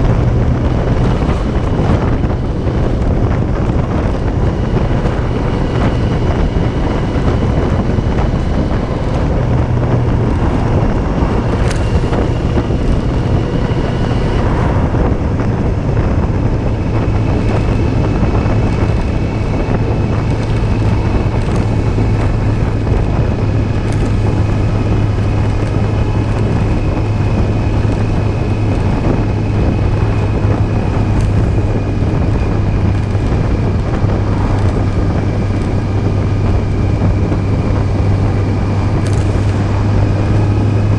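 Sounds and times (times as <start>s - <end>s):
motorcycle engine running: 0.0s - 40.9s
wind rushing over microphone: 0.0s - 40.9s.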